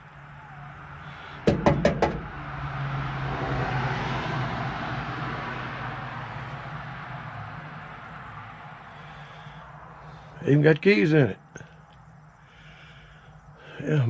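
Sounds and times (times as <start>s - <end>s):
vehicle passing by: 0.4s - 11.1s
sharp knocks: 1.4s - 2.6s.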